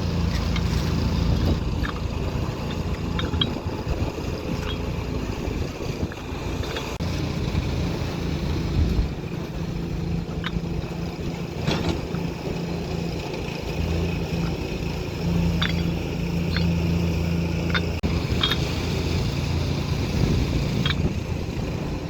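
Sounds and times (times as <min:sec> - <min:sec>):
heavy machine engine humming: 0:00.0 - 0:22.0
sharp clanks: 0:00.2 - 0:07.0, 0:10.2 - 0:12.7, 0:15.2 - 0:19.0.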